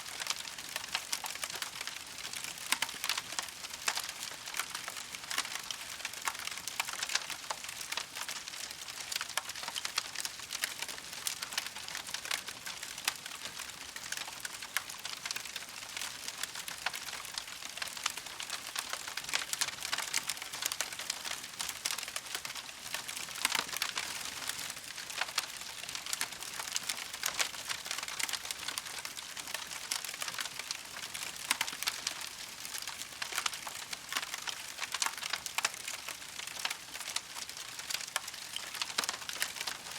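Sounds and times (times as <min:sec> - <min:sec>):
soft steady hiss: 0:00.0 - 0:39.9
campfire crackling: 0:10.4 - 0:39.9.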